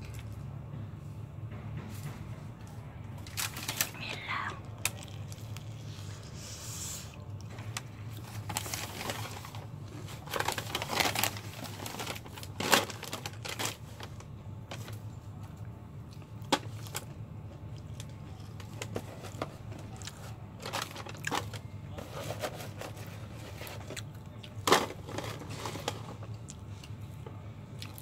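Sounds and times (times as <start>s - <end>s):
chewing crispy fried chicken: 4.6s - 12.3s, 15.3s - 21.8s, 23.0s - 25.1s, 26.0s - 28.0s.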